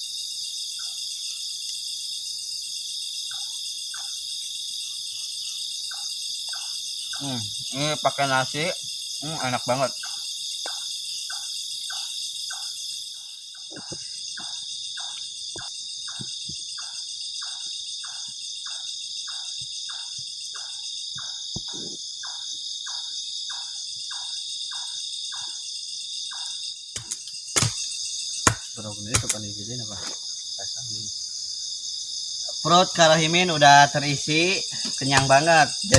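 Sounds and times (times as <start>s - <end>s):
crickets and insects chirring: 0.0s - 35.9s
sharp knocks: 27.0s - 27.8s, 28.4s - 29.4s, 34.8s - 35.9s.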